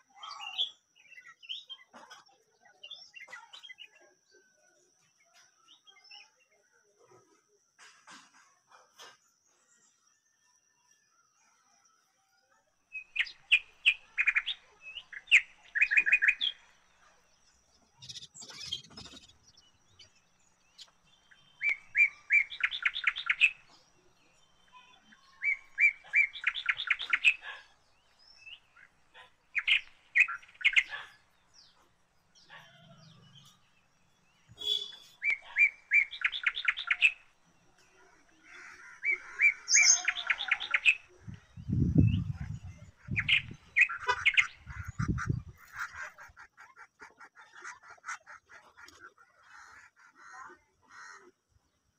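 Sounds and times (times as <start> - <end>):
bird trilling high chirps: 32.4 - 37.4, 39.0 - 46.0.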